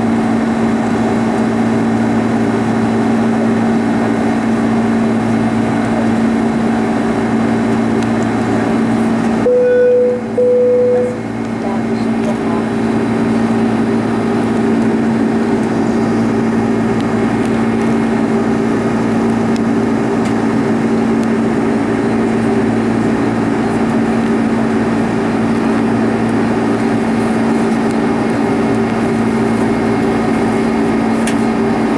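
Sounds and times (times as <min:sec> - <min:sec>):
jet engine cabin rush: 0:00.0 - 0:31.9
low droning hum: 0:09.3 - 0:21.2.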